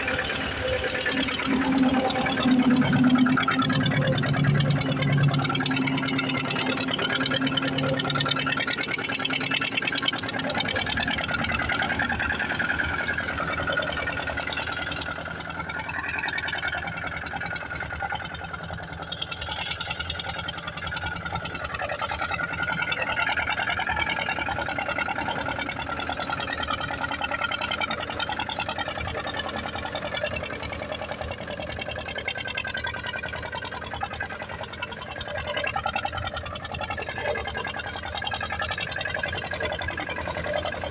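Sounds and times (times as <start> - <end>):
tractor diesel engine clattering: 0.0 - 40.9.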